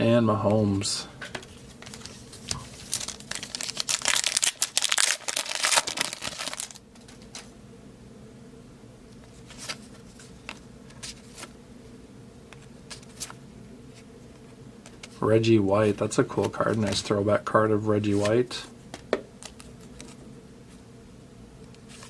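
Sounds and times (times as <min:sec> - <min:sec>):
cards being handled: 0:01.2 - 0:07.5, 0:09.2 - 0:11.6, 0:12.5 - 0:15.2, 0:15.8 - 0:17.2, 0:18.0 - 0:20.8, 0:21.7 - 0:22.0
foil wrapper tearing and crinkling: 0:01.7 - 0:07.5.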